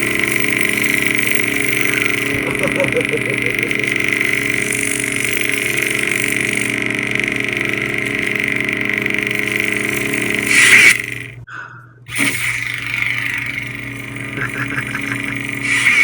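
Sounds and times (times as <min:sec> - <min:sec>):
buzzing lightsaber hum: 0:00.0 - 0:16.0.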